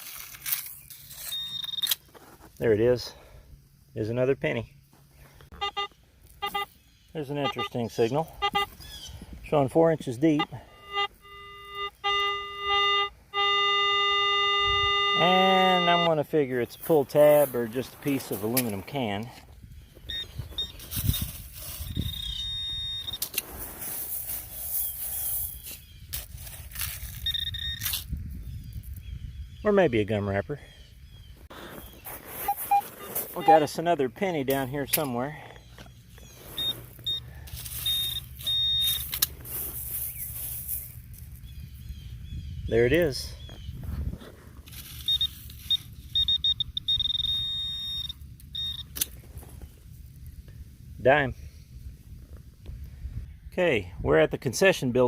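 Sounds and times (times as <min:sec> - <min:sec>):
cicadas buzzing: 0:00.7 - 0:26.1, 0:35.6 - 0:42.4, 0:45.1 - 0:48.9
metal detector high beep: 0:01.1 - 0:02.0, 0:05.5 - 0:18.5, 0:20.0 - 0:23.4, 0:27.1 - 0:28.0, 0:32.4 - 0:34.7, 0:36.2 - 0:39.3, 0:44.8 - 0:49.0.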